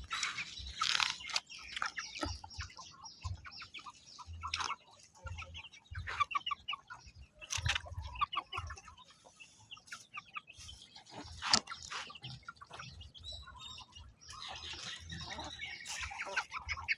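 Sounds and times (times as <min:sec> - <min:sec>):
birds clucking and chirping: 0:00.0 - 0:16.9.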